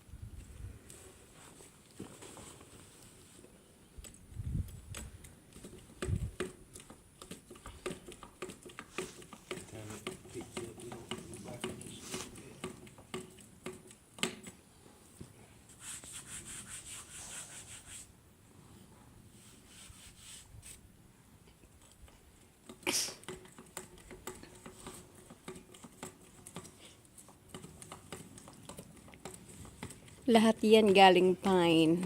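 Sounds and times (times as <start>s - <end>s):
scraping strokes on wood: 5.5s - 14.5s, 15.7s - 18.1s, 19.3s - 20.8s, 22.7s - 31.0s.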